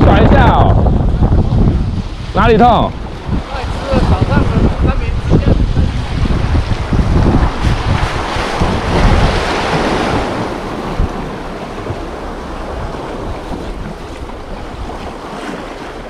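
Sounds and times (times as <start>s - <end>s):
sea waves washing on shore: 0.0s - 16.0s
wind buffeting microphone: 0.0s - 16.0s.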